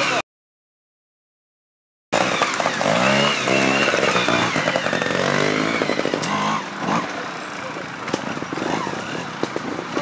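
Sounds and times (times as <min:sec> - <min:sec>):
motorcycle engine revving: 0:02.2 - 0:10.0.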